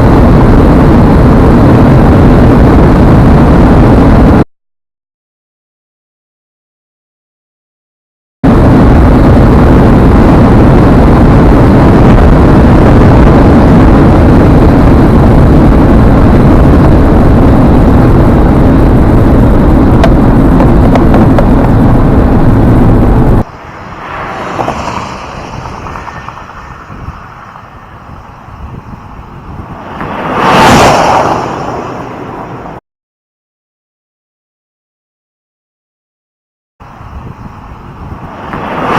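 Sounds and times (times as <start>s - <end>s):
wind and road noise rushing: 0.0s - 4.4s, 8.4s - 32.8s, 36.8s - 38.9s.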